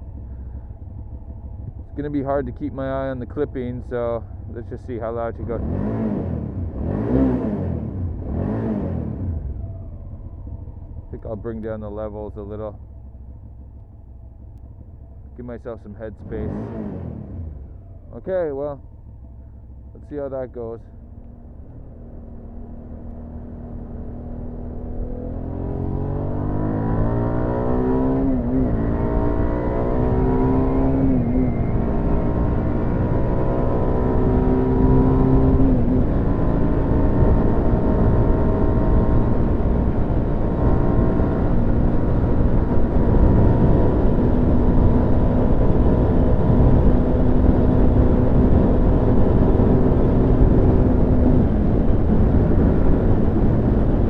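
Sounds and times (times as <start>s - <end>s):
motorcycle engine accelerating: 0.0s - 54.0s
wind noise: 28.7s - 54.0s.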